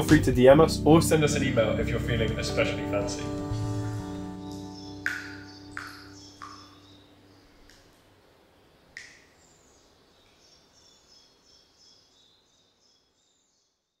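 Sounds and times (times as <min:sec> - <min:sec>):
faint bird chirps: 0:04.5 - 0:14.0.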